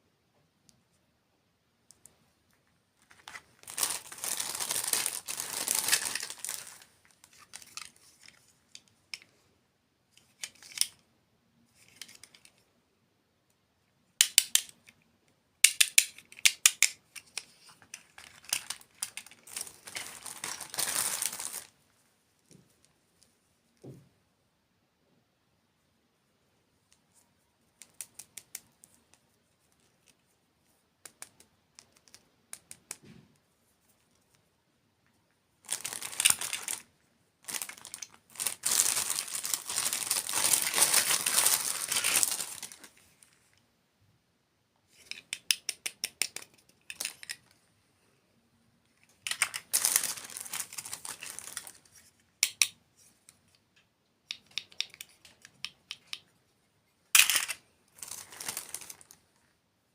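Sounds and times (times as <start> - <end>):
crinkling and crackling: 1.9 - 9.4, 16.8 - 21.8, 35.0 - 43.7, 48.8 - 53.6, 57.0 - 59.6.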